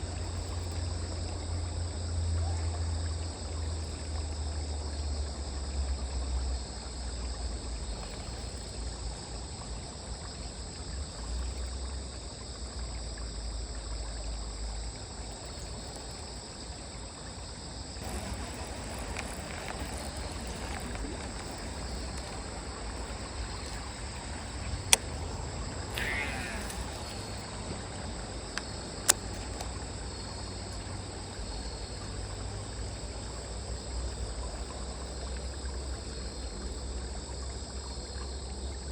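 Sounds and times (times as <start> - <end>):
insects trilling: 0.0 - 38.9
soft rustling or water: 0.0 - 38.9
sharp clicks: 18.0 - 27.5, 28.5 - 29.8.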